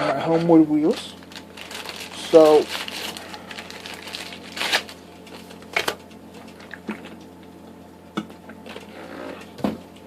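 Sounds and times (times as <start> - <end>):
packaging rustle: 0.9 - 6.7.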